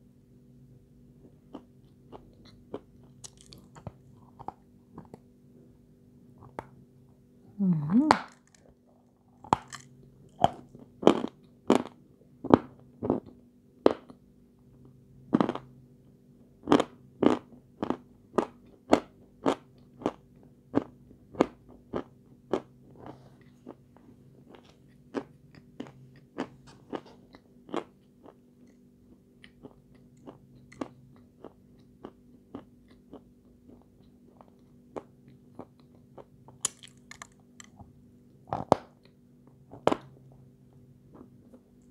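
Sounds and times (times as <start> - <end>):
faint steady hum: 0.0 - 41.9
chalk crunching when chewed: 1.5 - 5.2.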